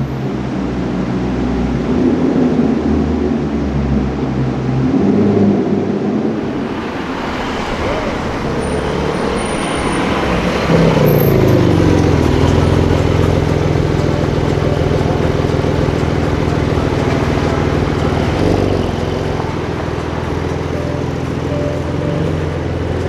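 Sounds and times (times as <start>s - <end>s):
street traffic: 5.7s - 23.0s
car engine droning: 6.1s - 23.0s.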